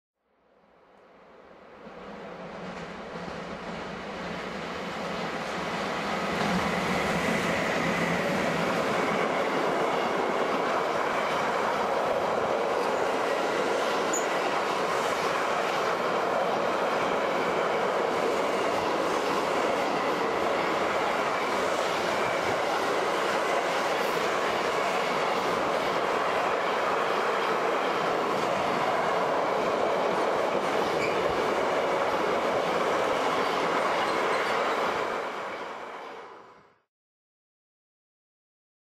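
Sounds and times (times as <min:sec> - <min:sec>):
train wheels rumbling on rail: 0:01.6 - 0:36.4.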